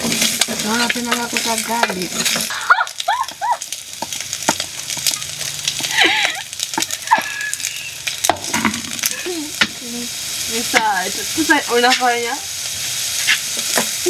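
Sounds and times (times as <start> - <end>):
utensil scraping a pan: 0.0 - 2.6, 10.5 - 14.0
food sizzling in a pan: 0.0 - 14.0.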